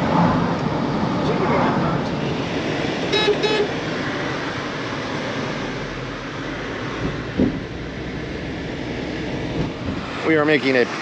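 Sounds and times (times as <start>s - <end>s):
road noise: 0.0s - 11.0s
car horn toots: 3.1s - 3.8s
low thud: 7.0s - 7.7s.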